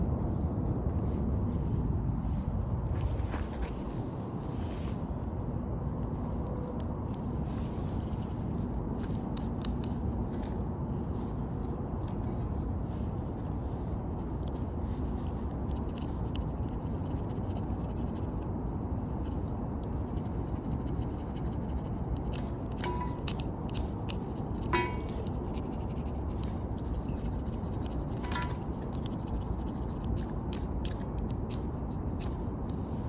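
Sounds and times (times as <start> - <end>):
steady low rumble: 0.0 - 33.0
scraping and scratching: 20.1 - 33.0.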